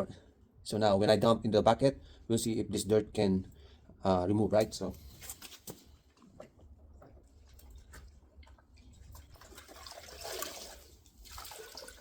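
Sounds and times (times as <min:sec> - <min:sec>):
water sloshing in a bucket: 0:05.2 - 0:12.0.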